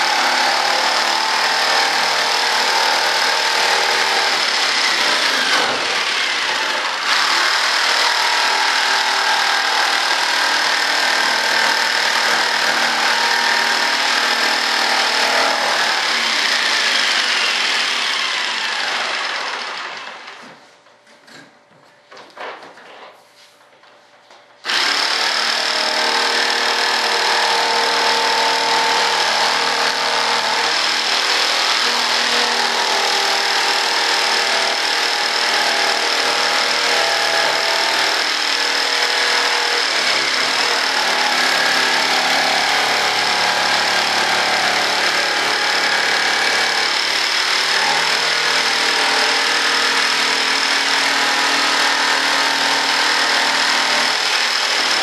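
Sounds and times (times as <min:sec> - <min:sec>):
electric saw cutting board: 0:00.0 - 0:20.5, 0:24.6 - 0:55.0.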